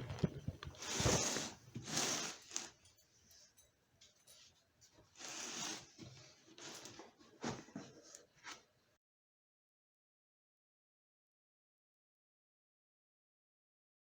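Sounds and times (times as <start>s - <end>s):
packaging rustling and scraping: 0.0s - 2.9s, 5.0s - 8.7s.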